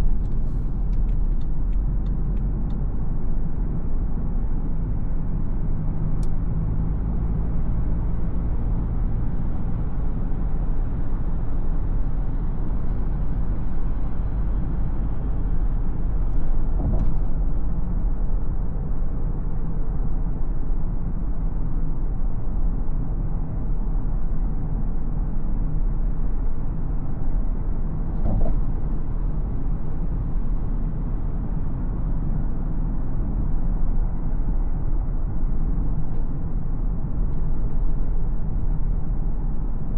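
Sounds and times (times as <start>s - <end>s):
car engine and tyre rumble: 0.0s - 39.9s
brief knocks: 28.2s - 28.6s.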